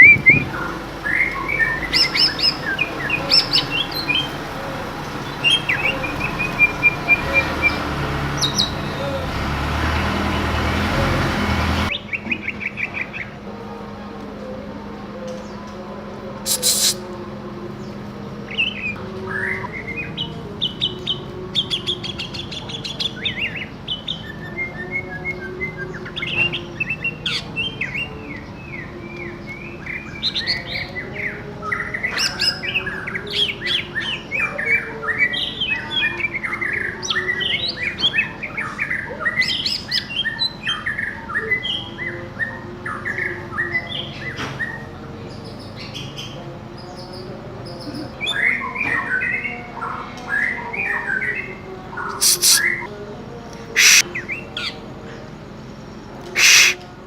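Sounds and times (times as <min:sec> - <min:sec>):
bird chirping and trilling: 0:00.0 - 0:10.8, 0:50.3 - 0:52.9, 0:53.8 - 0:54.8, 0:56.4 - 0:56.8.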